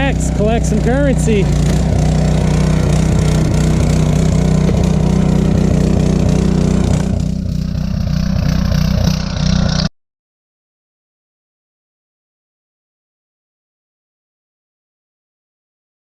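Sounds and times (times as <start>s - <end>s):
small gasoline engine running: 0.0s - 9.9s.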